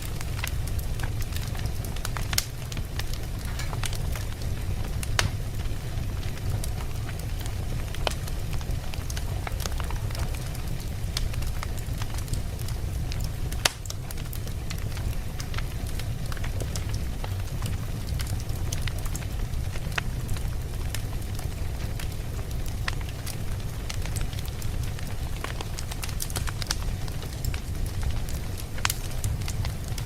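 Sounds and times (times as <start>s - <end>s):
low rumble of flames: 0.0s - 30.0s
wood crackling and popping: 0.0s - 30.0s.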